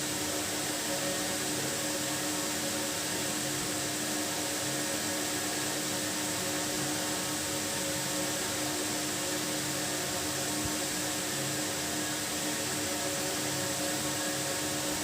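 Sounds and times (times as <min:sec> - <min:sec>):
background hum with hiss: 0:00.0 - 0:15.0.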